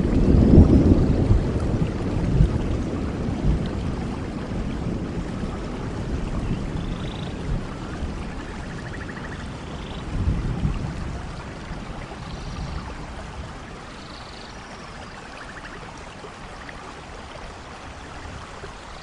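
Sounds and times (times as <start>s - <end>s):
thunder rumble: 0.0s - 13.8s
steady rain falling: 0.0s - 19.0s.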